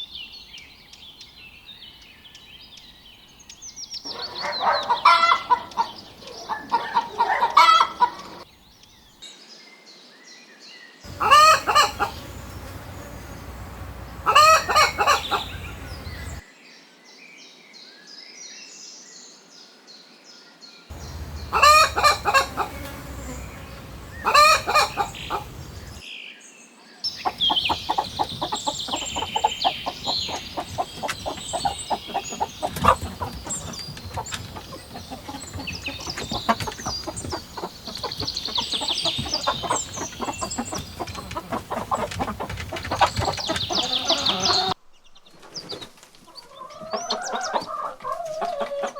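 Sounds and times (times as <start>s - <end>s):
high chirping calls: 3.5s - 8.4s, 11.1s - 16.4s, 20.9s - 26.0s, 27.1s - 44.8s
chickens clucking: 4.1s - 8.5s, 11.1s - 16.4s, 20.9s - 26.0s, 27.1s - 44.8s, 45.7s - 48.9s
rooster crowing: 11.1s - 16.4s, 20.9s - 26.0s, 43.7s - 44.8s.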